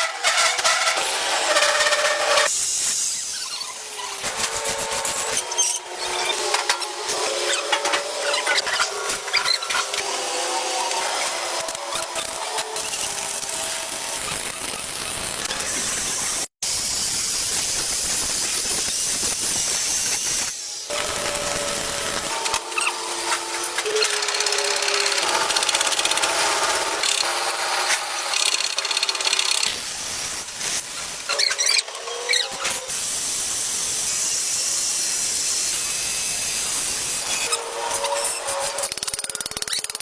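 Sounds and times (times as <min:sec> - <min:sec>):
power tool whirring: 0:17.1 - 0:40.0.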